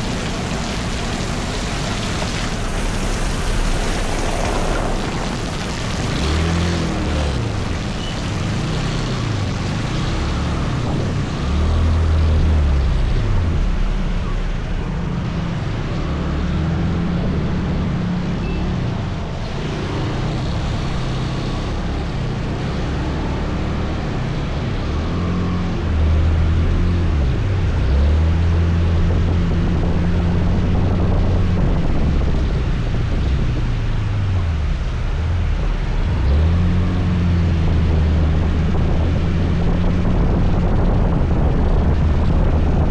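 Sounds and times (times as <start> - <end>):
motor scooter engine running: 0.0 - 12.4
wind and road noise: 0.0 - 42.9.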